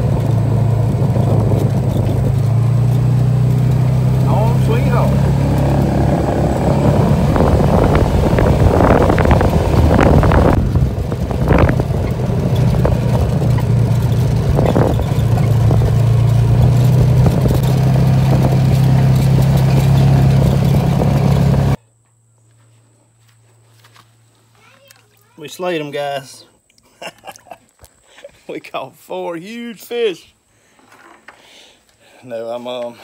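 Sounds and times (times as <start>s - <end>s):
off-road vehicle engine running: 0.0s - 21.8s
vehicle rattling: 0.0s - 21.8s.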